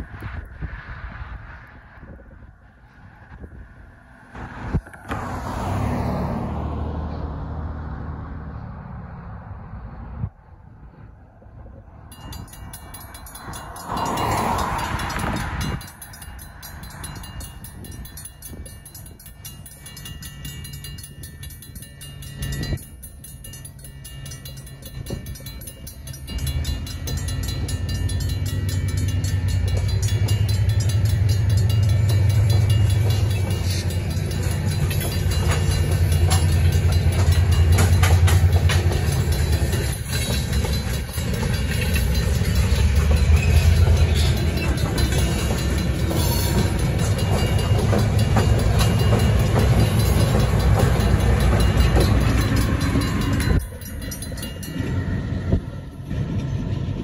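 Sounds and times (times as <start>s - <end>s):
train low rumble: 0.0s - 57.0s
wheels clicking over rail: 23.5s - 54.7s.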